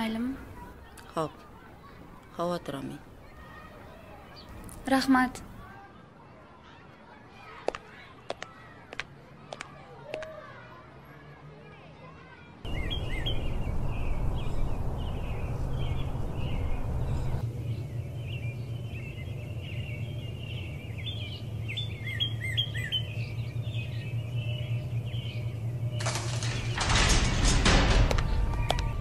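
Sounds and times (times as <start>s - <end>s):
songbirds chirping: 0.0s - 9.8s, 11.8s - 29.0s
steady low hum: 12.7s - 29.0s.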